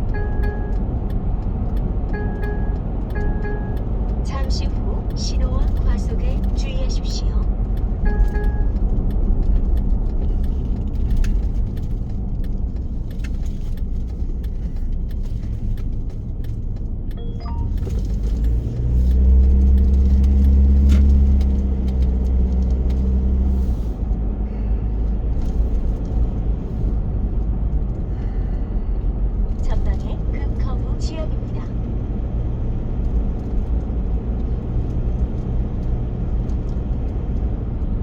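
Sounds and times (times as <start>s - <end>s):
car road noise: 0.0s - 38.0s
engine drone: 0.0s - 38.0s
light ticks and rattles: 0.1s - 24.2s.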